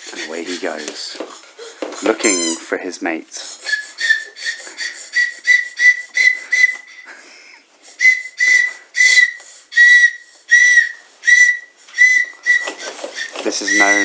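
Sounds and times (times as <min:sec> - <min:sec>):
tin whistle toots: 0:03.6 - 0:07.1, 0:07.9 - 0:14.0.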